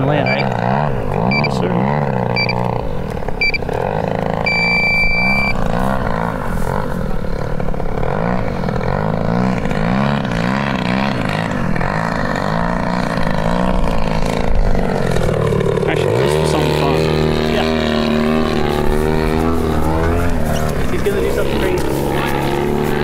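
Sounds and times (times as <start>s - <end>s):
model plane engine: 0.0s - 23.0s
high electronic beep: 0.2s - 0.5s, 1.3s - 1.6s, 2.4s - 2.6s, 3.4s - 3.6s, 4.5s - 5.6s.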